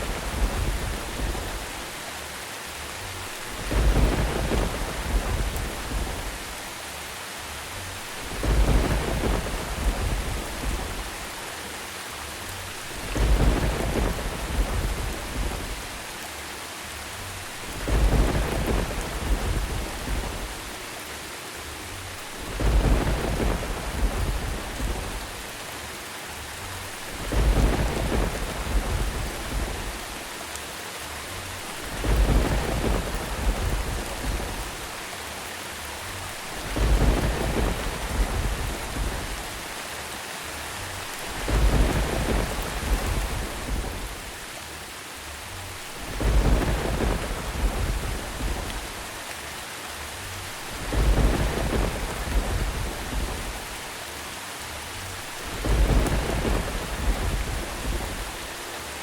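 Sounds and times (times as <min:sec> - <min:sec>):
thunder rumbling: 0:00.0 - 0:02.0, 0:03.0 - 0:06.7, 0:08.0 - 0:11.5, 0:12.7 - 0:16.1, 0:17.4 - 0:20.8, 0:22.2 - 0:25.6, 0:26.8 - 0:30.3, 0:31.6 - 0:35.1, 0:36.2 - 0:39.8, 0:40.9 - 0:44.6, 0:45.8 - 0:49.3, 0:50.3 - 0:54.0, 0:55.2 - 0:58.7
steady rain: 0:00.0 - 0:59.0.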